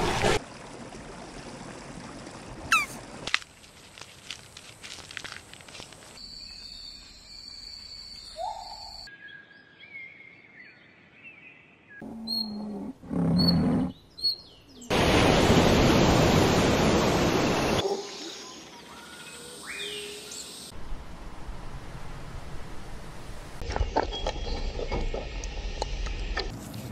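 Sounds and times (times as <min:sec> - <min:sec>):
birds chirping and whistling: 0:02.7 - 0:02.9, 0:06.2 - 0:12.8, 0:19.1 - 0:20.6.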